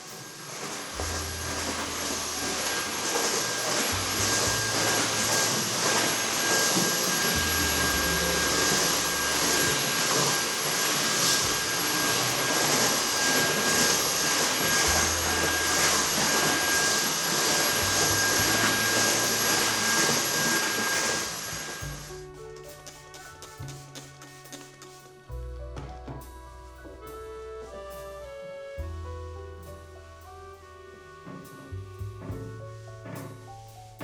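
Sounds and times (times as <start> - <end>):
motor and airflow rushing: 0.0 - 22.2
thin whine: 0.0 - 22.4
low changing tones: 0.1 - 22.2.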